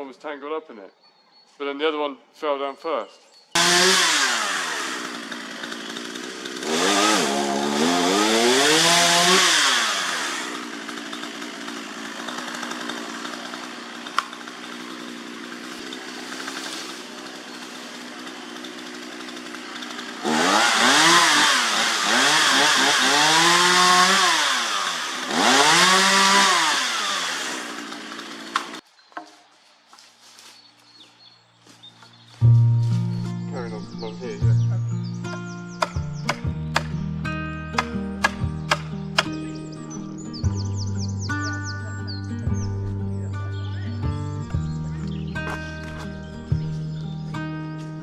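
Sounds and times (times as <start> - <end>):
chainsaw revving and idling: 3.6 - 28.8, 34.4 - 39.7, 44.0 - 47.0.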